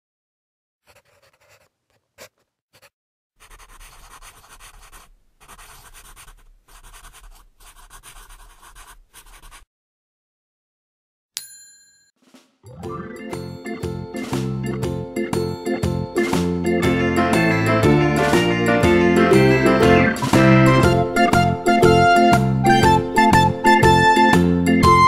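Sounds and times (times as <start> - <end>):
pen scratching on paper: 0.8 - 9.7.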